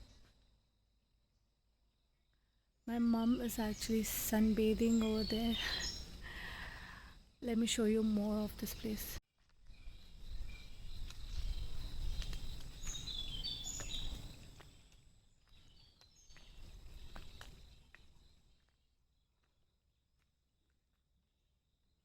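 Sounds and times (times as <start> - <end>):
bird chirps: 8.2 - 19.3
wind rumble on microphone: 8.8 - 14.8.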